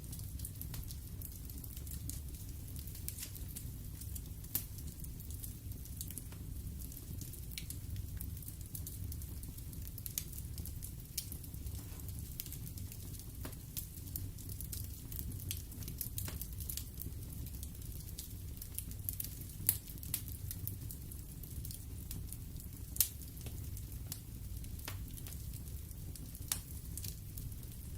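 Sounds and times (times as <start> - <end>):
fireplace fire crackling: 0.0 - 27.9.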